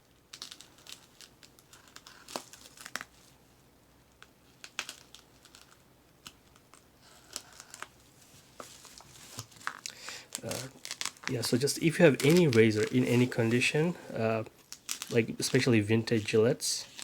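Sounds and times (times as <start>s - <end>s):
wrapping crinkling: 0.0s - 3.4s, 4.1s - 17.0s
packing tape slit and torn: 9.3s - 11.4s.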